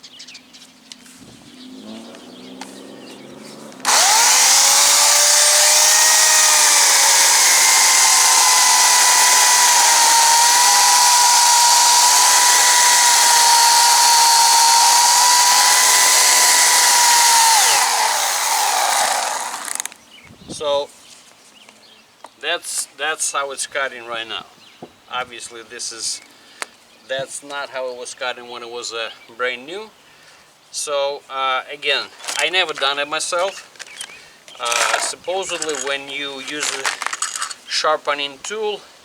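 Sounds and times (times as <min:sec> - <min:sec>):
electric chainsaw cutting wood: 0:03.8 - 0:20.0, 0:34.6 - 0:35.9, 0:36.5 - 0:37.5.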